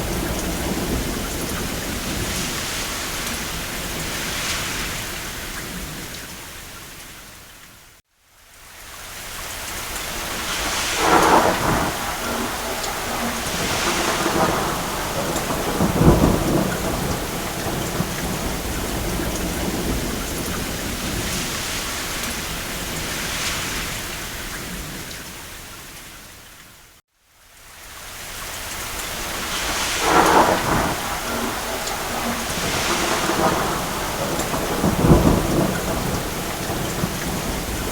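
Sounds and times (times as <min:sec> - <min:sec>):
distant thunder rumbling: 0:00.0 - 0:06.1, 0:10.2 - 0:25.2, 0:29.0 - 0:37.9
steady rain: 0:00.0 - 0:37.9.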